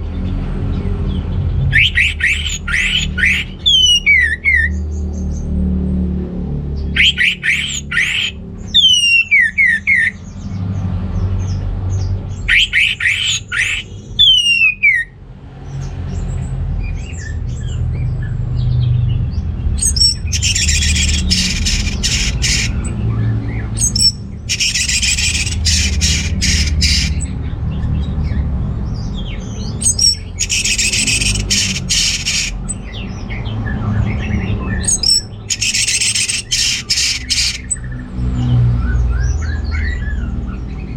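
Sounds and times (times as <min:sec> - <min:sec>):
bird harsh rasping bursts: 0:01.7 - 0:04.7, 0:07.0 - 0:10.1, 0:12.5 - 0:15.0, 0:20.3 - 0:22.8, 0:24.5 - 0:27.3, 0:29.9 - 0:32.7, 0:35.5 - 0:37.8
bird whistled phrases: 0:01.7 - 0:04.8, 0:07.0 - 0:10.2, 0:12.5 - 0:15.1, 0:19.9 - 0:22.8, 0:23.8 - 0:27.2, 0:29.8 - 0:32.6, 0:34.9 - 0:37.8.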